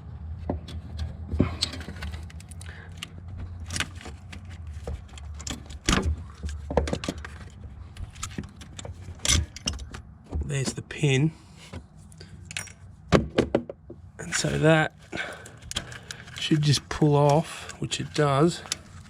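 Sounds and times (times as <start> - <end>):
metallic clicks and rattles: 15.4 - 19.0.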